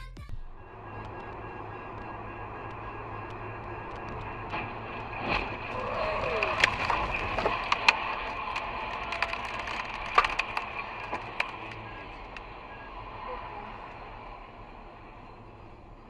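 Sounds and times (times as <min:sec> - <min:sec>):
steady background noise: 0:00.4 - 0:16.0
sharp cracks and clicks: 0:00.8 - 0:12.5.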